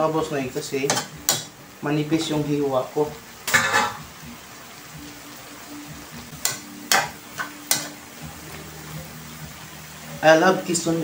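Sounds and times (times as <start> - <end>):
food sizzling in a wok: 0.0 - 11.0
metal spatula scraping wok: 3.5 - 4.0.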